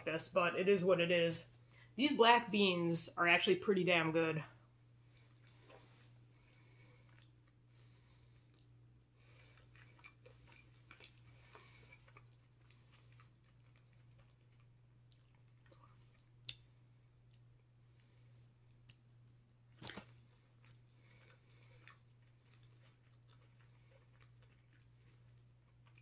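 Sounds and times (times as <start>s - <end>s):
low steady hum: 0.0s - 26.0s
faint chewing: 5.0s - 26.0s.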